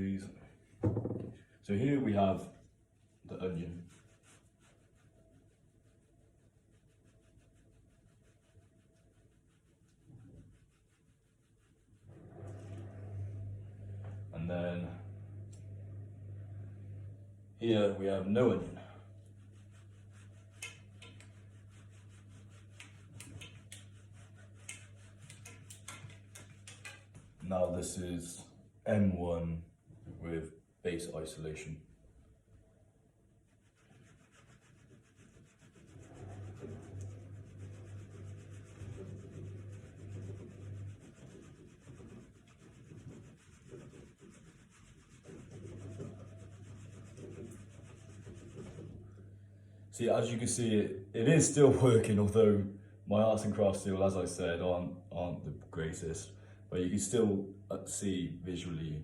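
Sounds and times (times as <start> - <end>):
low electrical hum: 0.0 - 59.0
model structure rubbing and scraping: 33.7 - 49.2.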